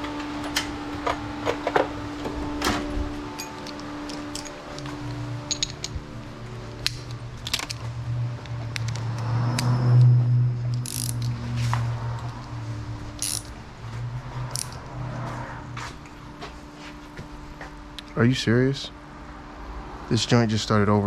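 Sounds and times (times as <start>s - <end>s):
steady low hum: 0.0s - 21.0s
socket ratchet clicking on metal: 10.7s - 11.3s, 13.2s - 13.6s, 14.5s - 14.8s.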